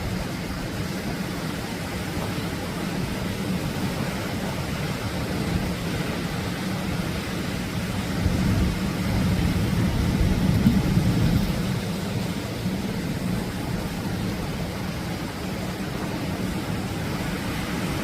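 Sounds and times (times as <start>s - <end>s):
surf breaking on shore: 0.0s - 18.0s.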